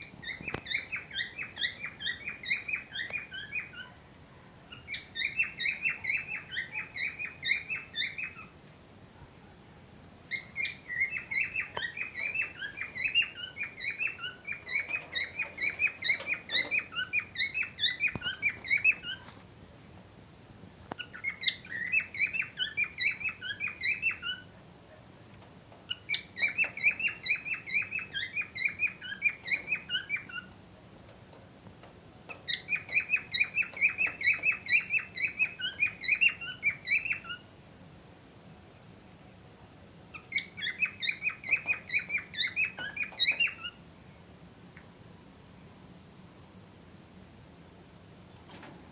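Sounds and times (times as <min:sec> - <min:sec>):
cockatiels chirping: 0:00.1 - 0:03.9, 0:04.7 - 0:08.5, 0:10.3 - 0:19.3, 0:21.0 - 0:24.5, 0:25.9 - 0:30.6, 0:32.4 - 0:37.4, 0:40.1 - 0:43.8.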